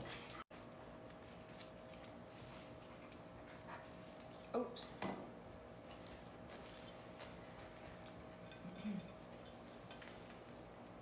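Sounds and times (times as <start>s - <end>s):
utensils clinking on dishes: 5.8s - 10.4s.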